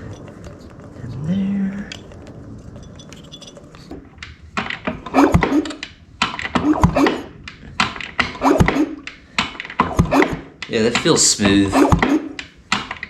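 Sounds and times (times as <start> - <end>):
motorcycle kickstarter thunks: 1.8 - 13.0.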